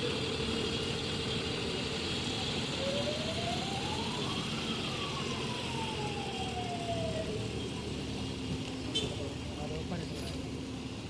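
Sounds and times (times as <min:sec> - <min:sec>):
vehicle engines running: 0:00.0 - 0:11.0
siren wailing: 0:02.8 - 0:07.5.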